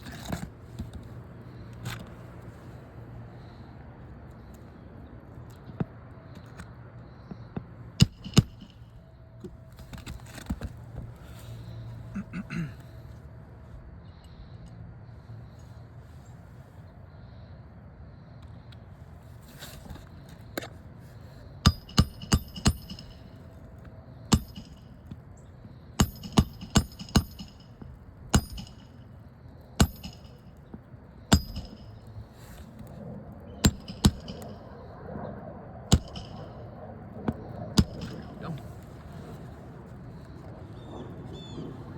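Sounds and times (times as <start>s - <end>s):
hammer striking roofing nails: 8.0s - 8.9s, 21.7s - 23.2s, 24.3s - 25.2s, 26.0s - 29.0s, 29.8s - 30.4s, 31.3s - 32.0s, 33.6s - 34.6s, 35.9s - 36.6s, 37.3s - 38.3s.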